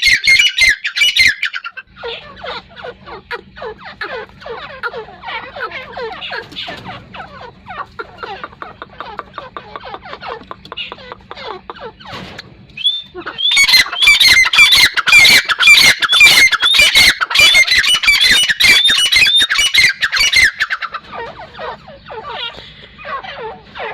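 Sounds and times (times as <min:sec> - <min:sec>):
bird calling harsh repeated notes: 0:00.0 - 0:12.2, 0:12.8 - 0:23.9
soft falling bird notes: 0:11.9 - 0:14.1.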